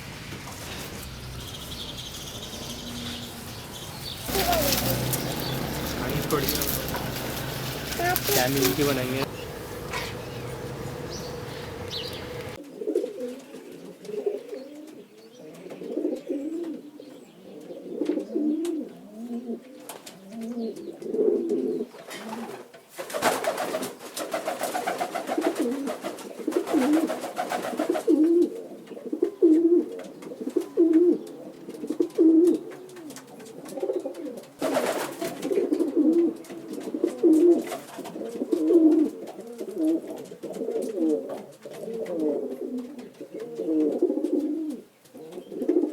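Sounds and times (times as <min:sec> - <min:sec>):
rustling noise: 0:00.0 - 0:12.6
pigeons cooing: 0:00.0 - 0:45.9.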